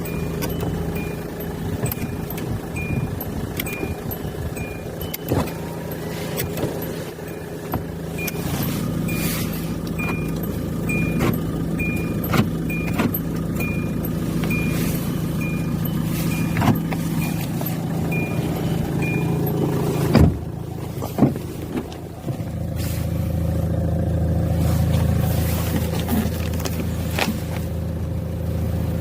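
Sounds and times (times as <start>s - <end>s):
high warning beeps: 0.0s - 20.2s
car engine idling: 0.0s - 29.0s.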